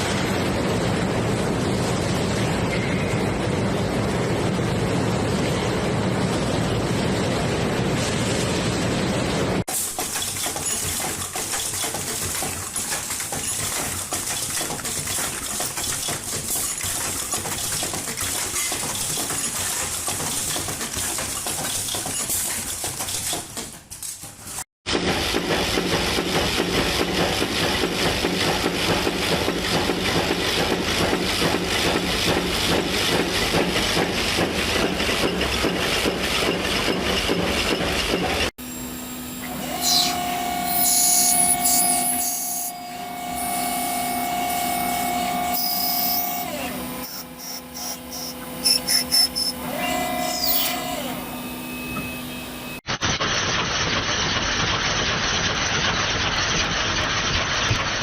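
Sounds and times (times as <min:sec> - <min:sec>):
machinery rapid clatter: 0:00.0 - 0:38.5, 0:52.8 - 0:58.0.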